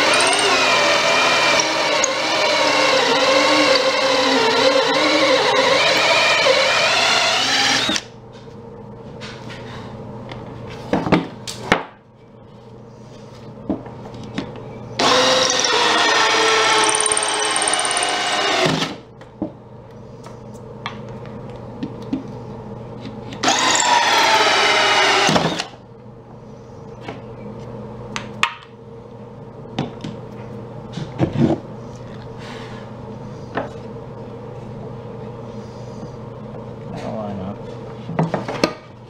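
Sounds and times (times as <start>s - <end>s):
power drill running: 0.0s - 8.1s, 15.0s - 19.0s, 23.4s - 25.8s.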